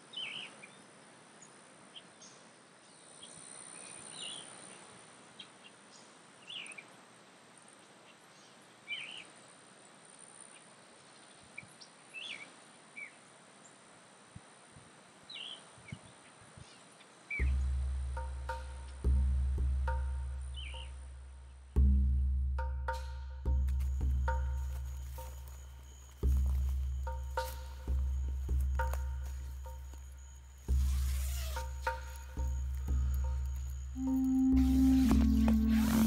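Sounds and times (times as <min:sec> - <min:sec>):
high-pitched insect drone: 0:23.9 - 0:36.0.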